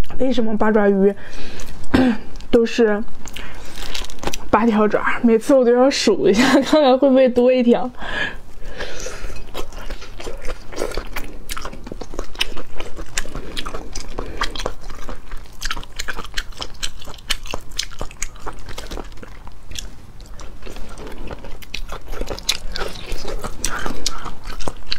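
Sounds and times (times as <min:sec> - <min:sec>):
chewing octopus tentacles: 0:08.6 - 0:24.9.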